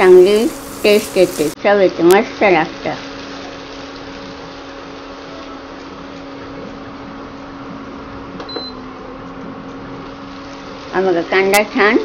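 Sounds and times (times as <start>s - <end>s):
onions sizzling in oil: 0.0s - 9.0s, 9.8s - 12.0s
cooktop hum: 0.0s - 12.0s.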